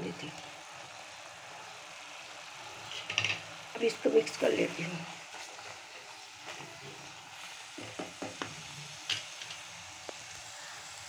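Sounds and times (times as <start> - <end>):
paste sizzling in hot oil: 0.0 - 11.0
spoon scraping pan: 2.8 - 3.4, 5.3 - 9.7.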